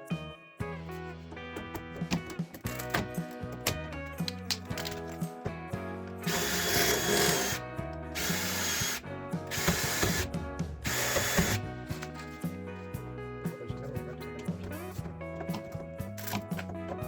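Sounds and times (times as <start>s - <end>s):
background music with beat: 0.0s - 17.0s
power drill running: 6.2s - 7.6s, 8.2s - 11.6s.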